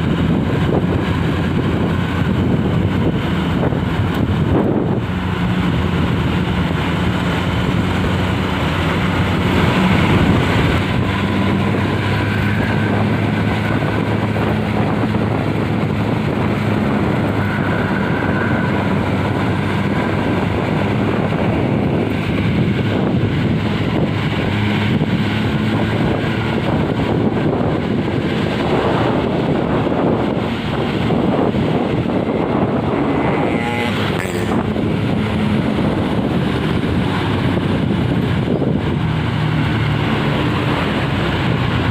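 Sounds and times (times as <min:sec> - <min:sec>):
road noise: 0:00.0 - 0:41.9
vehicle engine running: 0:00.0 - 0:41.9
wind buffeting microphone: 0:00.0 - 0:41.9.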